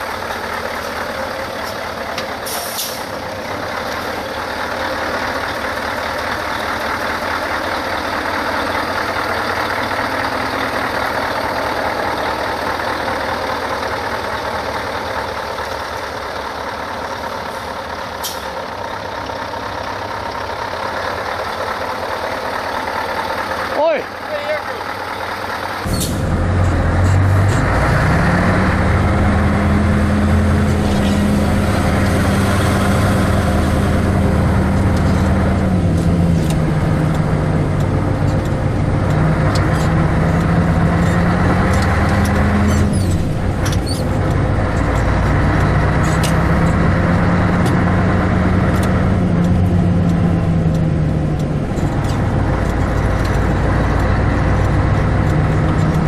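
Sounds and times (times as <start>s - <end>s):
diesel engine revving: 0.0s - 56.0s.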